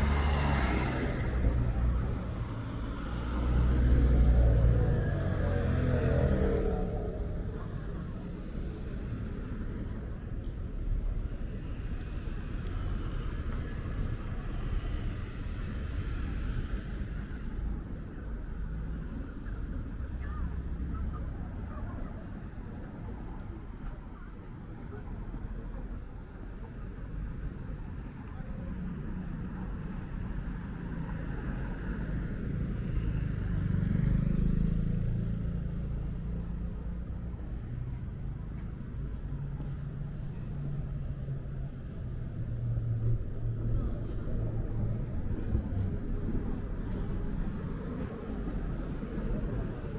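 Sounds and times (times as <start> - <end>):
vehicle engine passing by: 0.0 - 10.2, 31.2 - 37.0
city street rumble: 0.0 - 49.9.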